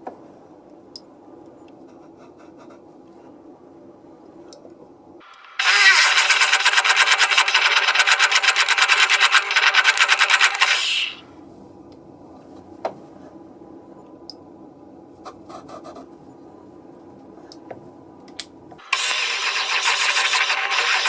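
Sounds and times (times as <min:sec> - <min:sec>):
power tool motor pulsing: 0:05.3 - 0:11.2, 0:18.8 - 0:21.0.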